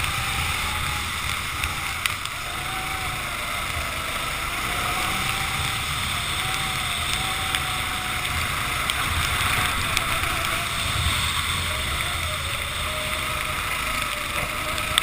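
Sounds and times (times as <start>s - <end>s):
kart engine: 0.0s - 15.0s
wind and water spray rushing: 0.0s - 15.0s.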